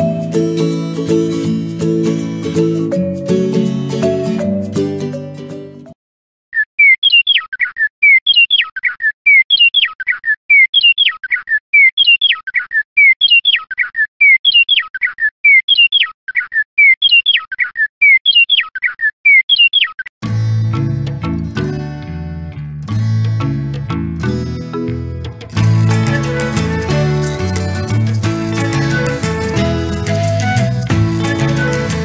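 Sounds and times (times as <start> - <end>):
toy bird chirping birdsong: 6.5 - 20.1.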